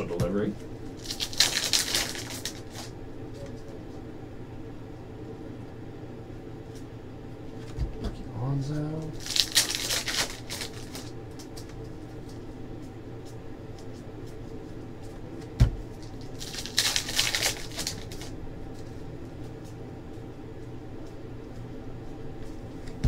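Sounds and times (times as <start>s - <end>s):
card wrappers crinkling: 1.0s - 2.9s, 9.2s - 12.4s, 16.0s - 19.0s.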